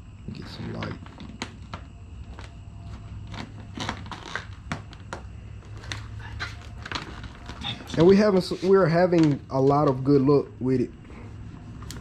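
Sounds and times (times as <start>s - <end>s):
steady low hum: 0.0s - 12.0s
plastic film crinkling: 0.7s - 10.3s.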